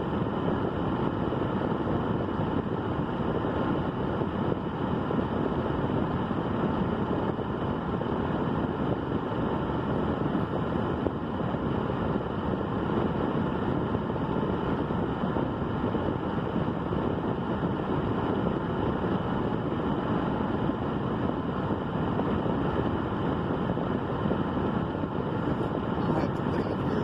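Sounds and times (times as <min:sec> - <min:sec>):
steady rushing noise: 0:00.0 - 0:27.0.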